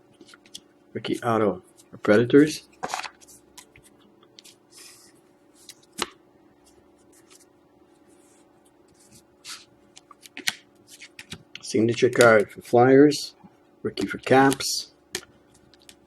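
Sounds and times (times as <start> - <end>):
faint steady hum: 0.0 - 16.0
cards sliding on a table: 4.4 - 5.8, 8.1 - 9.7.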